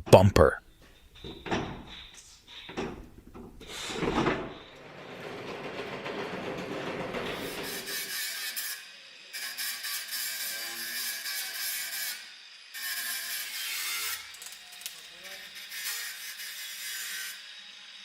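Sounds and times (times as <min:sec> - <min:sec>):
bumper scraping against car: 0:02.9 - 0:08.0.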